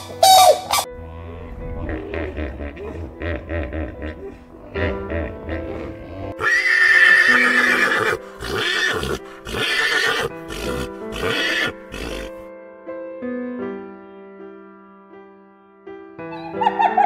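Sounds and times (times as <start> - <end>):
background music: 0.0 - 17.0
horse whinnying: 6.3 - 12.4.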